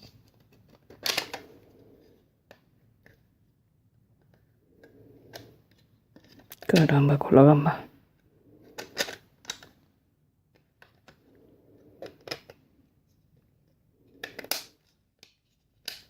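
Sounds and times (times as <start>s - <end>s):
plastic parts clicking: 0.2s - 1.4s, 8.8s - 9.8s, 12.0s - 12.6s, 14.2s - 16.0s.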